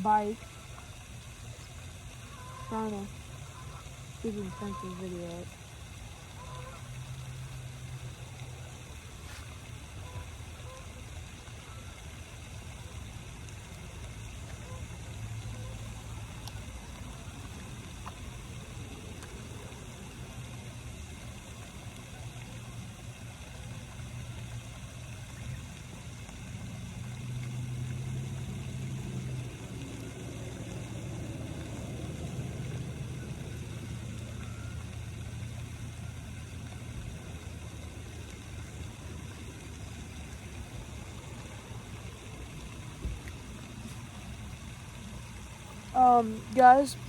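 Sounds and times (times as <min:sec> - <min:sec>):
vehicle engine humming: 0:12.3 - 0:47.0.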